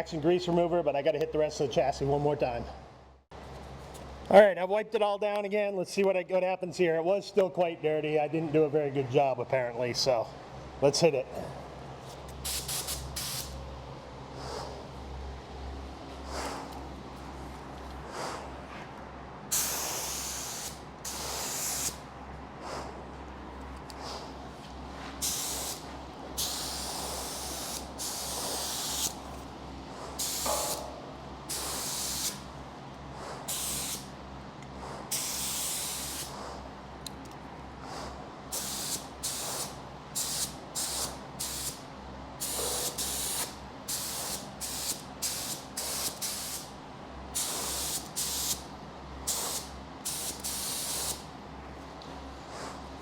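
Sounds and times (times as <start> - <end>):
spray gun hissing: 12.4 - 13.6, 19.5 - 22.0, 25.2 - 29.2, 30.1 - 30.9, 31.5 - 32.4, 33.4 - 34.1, 35.1 - 36.4, 38.5 - 41.8, 42.4 - 46.7, 47.4 - 48.6, 49.3 - 51.2.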